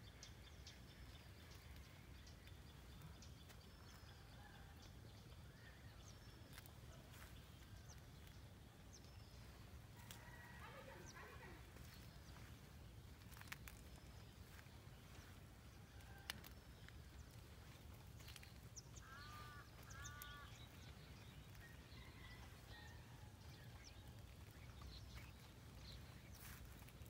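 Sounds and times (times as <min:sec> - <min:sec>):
bird calls: 0:16.0 - 0:23.0.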